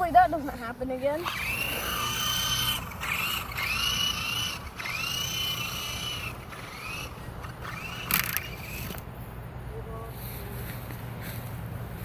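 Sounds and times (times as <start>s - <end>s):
toy helicopter motor whining: 1.2s - 9.0s.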